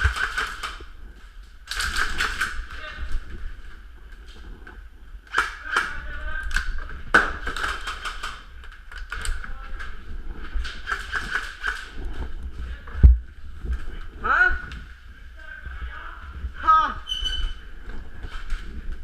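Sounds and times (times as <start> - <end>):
airsoft guns firing: 0.0 - 0.8, 1.7 - 2.7, 5.3 - 8.5, 10.7 - 11.9.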